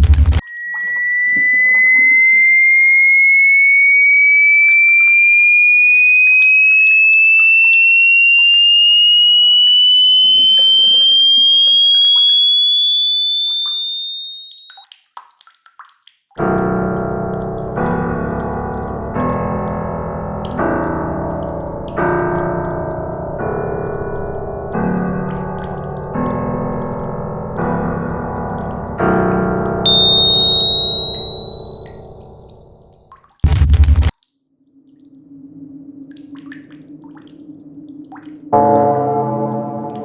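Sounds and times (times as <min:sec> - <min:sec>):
electronic tone sweeping upward: 0:00.0 - 0:14.8, 0:29.9 - 0:34.1
keyboard chord: 0:38.6 - 0:40.0.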